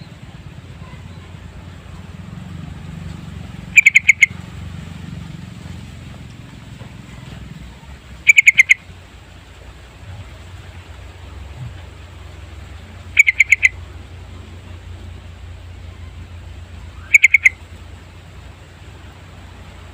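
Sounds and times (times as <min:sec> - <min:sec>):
low background rumble: 0:00.0 - 0:19.9
bulbul calling: 0:03.6 - 0:04.5, 0:07.1 - 0:09.0, 0:10.1 - 0:15.1, 0:15.8 - 0:17.9.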